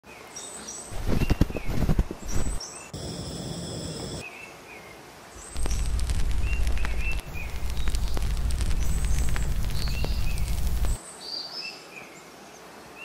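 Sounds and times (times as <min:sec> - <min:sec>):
small birds chirping: 0:00.2 - 0:11.6
low rumble with crackling: 0:05.5 - 0:11.0
crunching thumps: 0:05.6 - 0:11.0.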